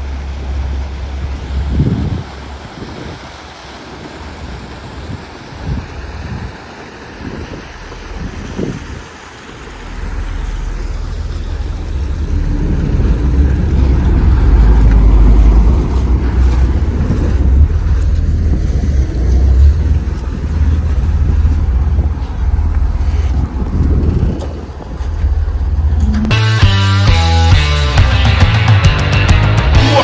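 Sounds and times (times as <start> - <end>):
ferry engine and water rumble: 0.0 - 30.0
wind buffeting microphone: 0.4 - 26.8.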